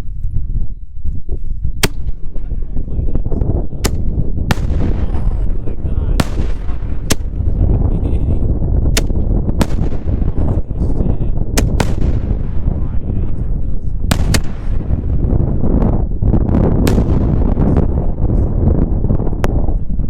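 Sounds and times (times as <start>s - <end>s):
continuous low rumble: 0.0s - 20.0s
firework shells bursting: 1.8s - 2.9s, 3.8s - 8.0s, 8.9s - 10.9s, 11.5s - 13.0s, 14.1s - 15.6s, 16.8s - 18.2s.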